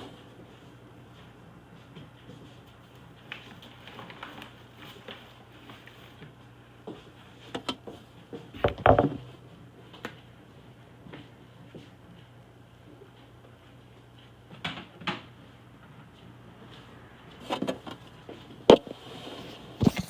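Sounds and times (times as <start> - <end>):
kitchen things knocking and clattering: 8.6 - 9.3.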